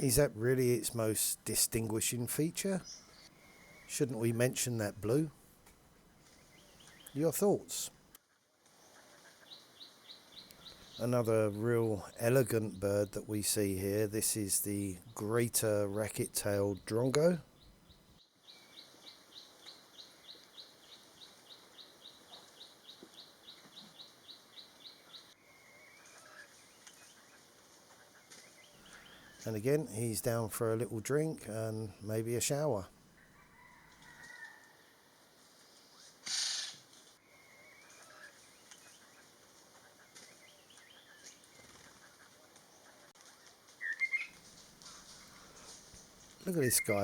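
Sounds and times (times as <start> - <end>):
faint jungle background: 0.0 - 47.0
bird chirping: 1.7 - 5.2, 6.0 - 7.9, 9.4 - 14.2, 14.8 - 27.4, 28.2 - 30.4, 40.0 - 42.0, 43.8 - 47.0
faint bird chirps: 2.8 - 4.0, 17.4 - 29.5, 35.6 - 47.0.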